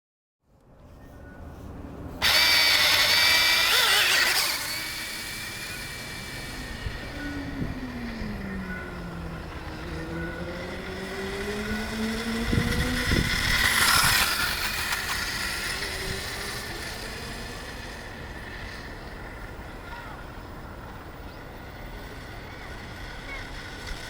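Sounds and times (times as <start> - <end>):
electric motor whining: 2.2 - 19.9.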